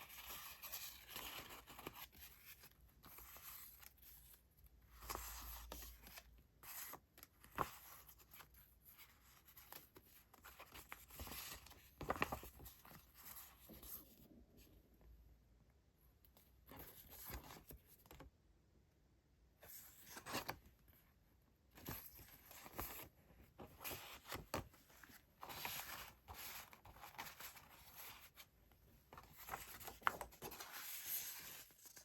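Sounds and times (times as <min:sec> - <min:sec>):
paper rustling: 0:21.8 - 0:28.5, 0:29.1 - 0:32.0.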